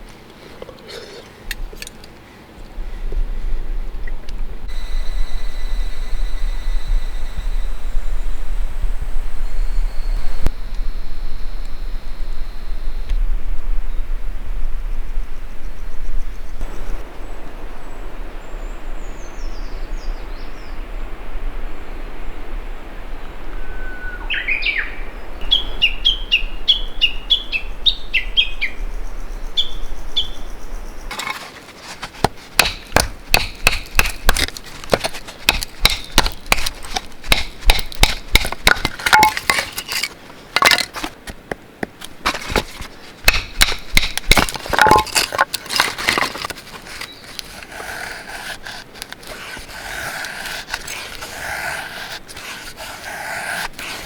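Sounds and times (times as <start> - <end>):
dry wood cracking and knocking: 31.1 - 51.4
scraping: 31.1 - 54.0.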